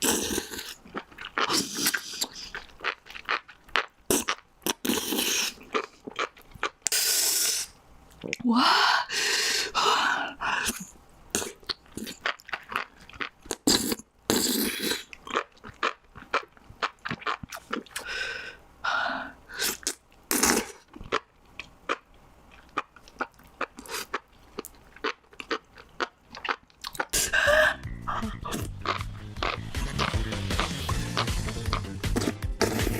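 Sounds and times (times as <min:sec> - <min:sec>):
wet chewing: 0:00.0 - 0:07.0, 0:11.4 - 0:18.1, 0:19.6 - 0:32.9
slurping: 0:00.0 - 0:08.4, 0:26.4 - 0:32.9
mouth clicks: 0:22.6 - 0:32.9.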